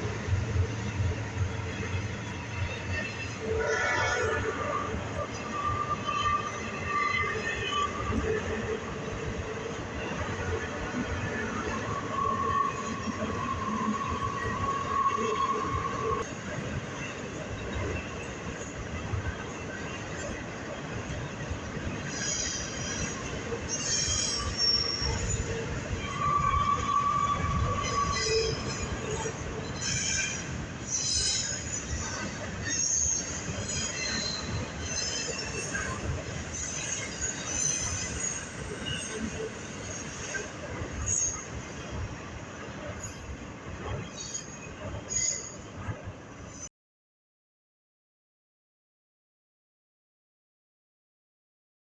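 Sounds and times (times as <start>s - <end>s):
railroad cars wheel rumble: 0.0s - 46.7s
high wheel squeals: 22.0s - 41.6s.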